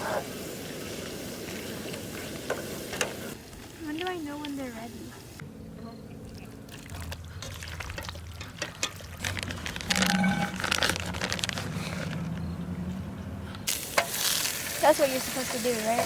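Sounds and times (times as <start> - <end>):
camp stove burner: 0.0 - 3.4
utensil scraping in a pot: 9.2 - 12.1
metal ring: 9.5 - 11.1.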